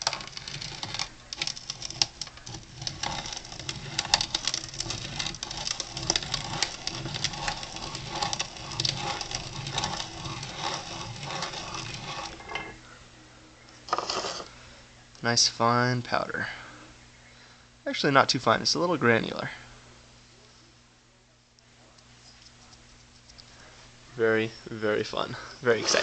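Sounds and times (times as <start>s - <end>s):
grain grinder crunching beans: 0.0s - 12.6s, 13.9s - 14.5s, 25.6s - 26.0s.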